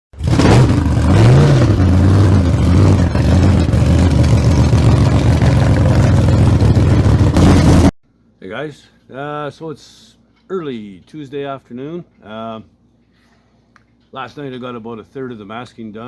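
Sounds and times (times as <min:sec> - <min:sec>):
loud engine revving and idling: 0:00.2 - 0:07.9.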